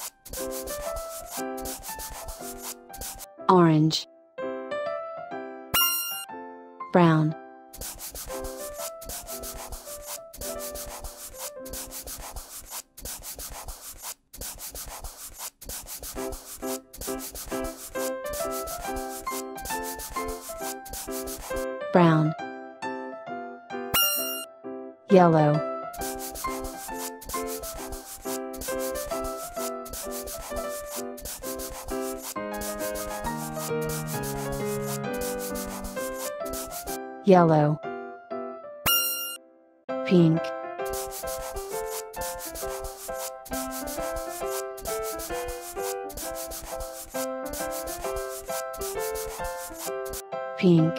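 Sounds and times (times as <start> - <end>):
marker scratching on paper: 0.0 - 3.3, 5.8 - 6.2, 7.8 - 21.6, 24.0 - 24.4, 26.0 - 37.0, 40.9 - 50.2
plinking children's tune: 24.0 - 24.4.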